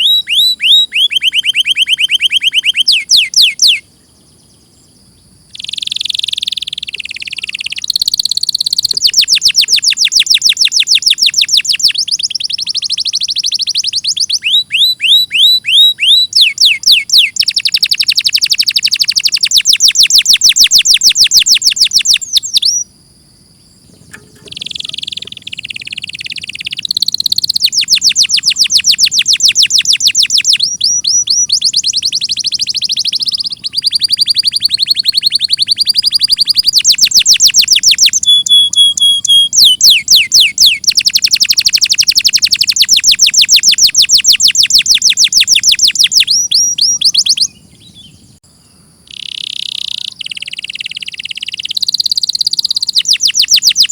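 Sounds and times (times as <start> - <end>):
canary singing trills: 0.0 - 22.9, 23.6 - 53.9.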